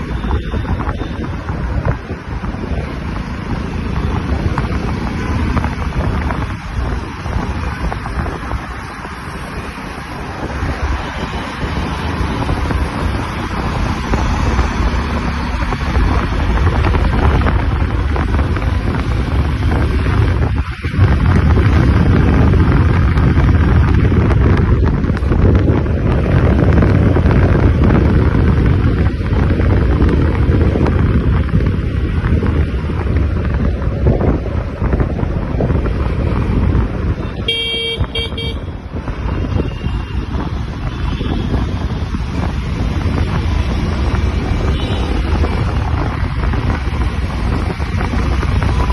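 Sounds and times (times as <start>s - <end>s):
road and engine rumble: 0.0s - 48.9s
wind rushing over microphone: 0.0s - 48.9s
vehicle horn toots: 37.4s - 38.7s.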